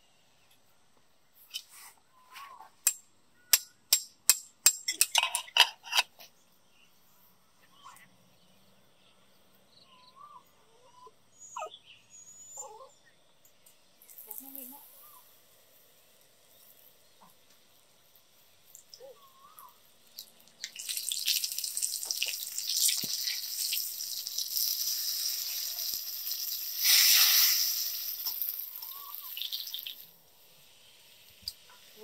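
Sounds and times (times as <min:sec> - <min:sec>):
faint chirps: 0:01.3 - 0:03.6, 0:06.2 - 0:20.4, 0:24.8 - 0:32.0
cutlet sizzling in oil: 0:14.0 - 0:32.0.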